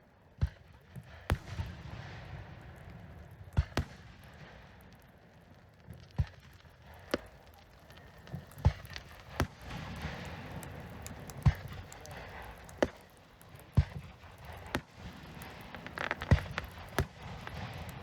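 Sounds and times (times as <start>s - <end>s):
fireworks bangs: 0.4s - 18.0s.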